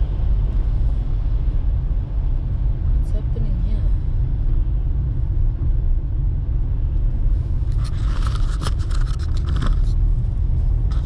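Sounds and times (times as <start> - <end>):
car road noise inside cabin: 0.0 - 11.0
sharp clicks and rattles: 7.6 - 10.2.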